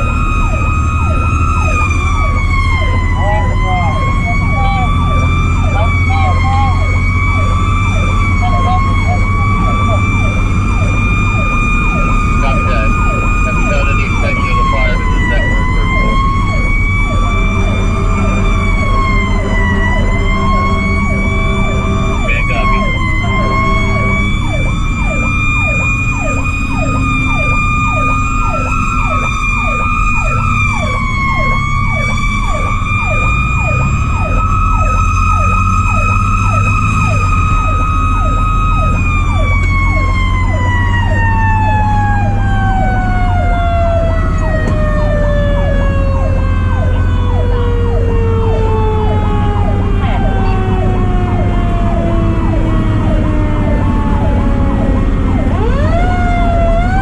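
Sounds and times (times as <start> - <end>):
electronic siren yelping: 0.0 - 57.0
mechanical siren wailing: 0.0 - 57.0
truck engine rumbling: 0.0 - 57.0.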